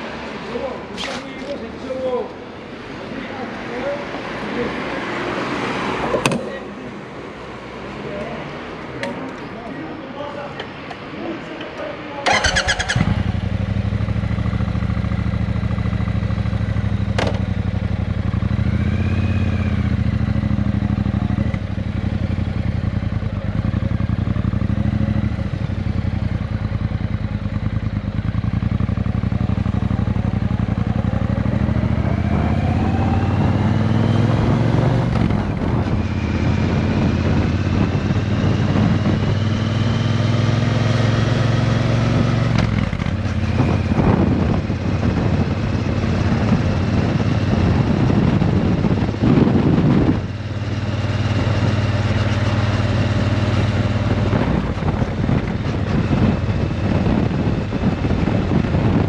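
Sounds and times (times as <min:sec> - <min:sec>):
motorcycle engine idling: 0:12.3 - 0:31.6.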